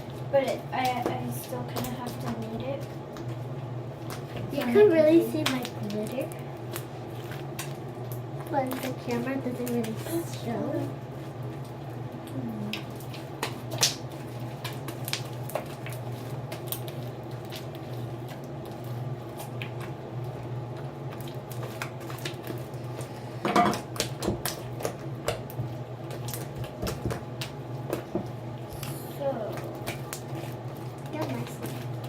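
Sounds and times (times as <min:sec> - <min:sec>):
steady low hum: 0:00.0 - 0:32.0
slime squelching and clicking: 0:05.4 - 0:10.0.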